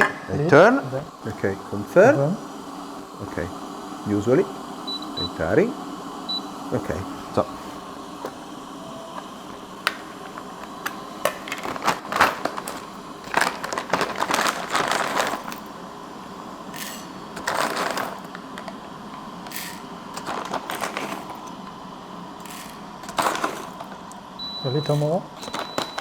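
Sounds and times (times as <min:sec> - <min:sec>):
coffee beans rattling into cup: 0:09.1 - 0:15.8, 0:16.6 - 0:21.7, 0:22.4 - 0:24.0.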